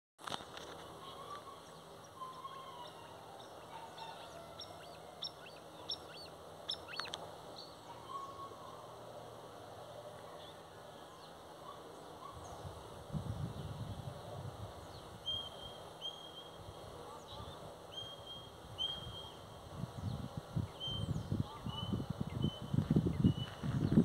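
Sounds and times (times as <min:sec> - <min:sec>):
birds chirping: 0:00.3 - 0:09.0, 0:14.8 - 0:24.0
lower bird calls: 0:00.3 - 0:09.0, 0:14.9 - 0:24.0.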